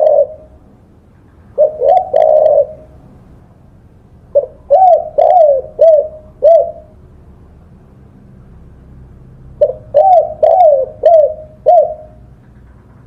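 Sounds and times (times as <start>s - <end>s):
dove cooing: 0.0s - 0.6s, 1.5s - 3.1s, 4.3s - 7.0s, 9.6s - 12.4s.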